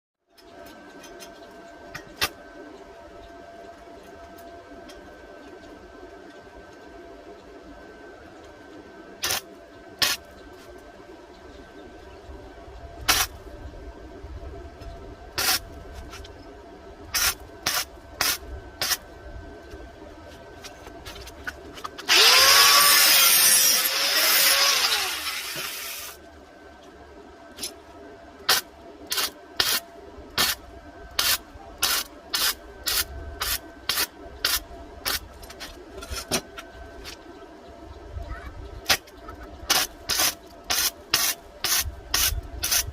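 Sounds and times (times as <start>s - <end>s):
faint steady hum: 0.2s - 42.9s
arc welding zaps: 9.2s - 10.3s, 13.1s - 13.4s, 15.4s - 15.7s, 17.1s - 19.0s, 21.9s - 26.2s, 28.5s - 29.8s, 30.4s - 35.4s, 39.7s - 42.9s.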